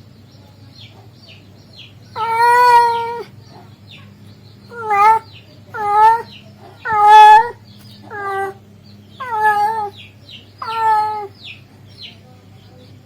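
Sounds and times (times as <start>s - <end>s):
cat mating call meows: 2.2s - 3.3s, 4.7s - 8.6s, 9.2s - 10.0s, 10.6s - 11.3s.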